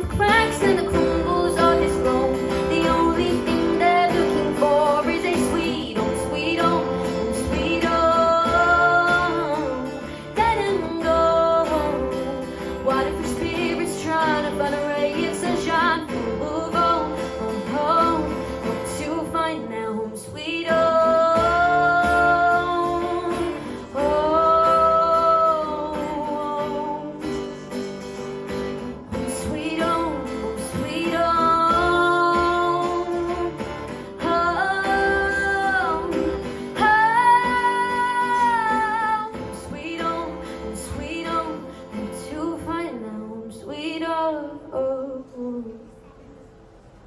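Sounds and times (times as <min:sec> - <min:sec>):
person singing long wordless notes: 0:00.0 - 0:27.6, 0:29.1 - 0:43.2
guitar accompaniment: 0:00.0 - 0:44.8.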